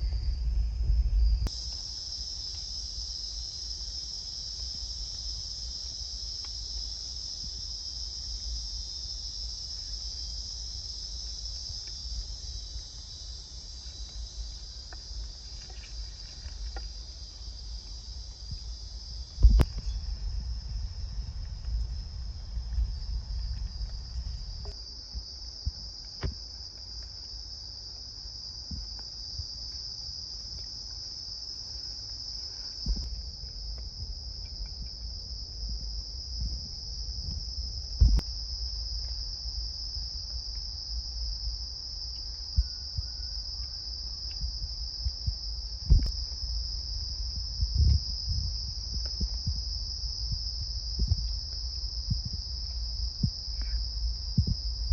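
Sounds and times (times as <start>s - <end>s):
low rumble: 0.0s - 1.6s, 18.3s - 24.7s, 44.5s - 54.9s
night insects chorus: 0.0s - 54.9s.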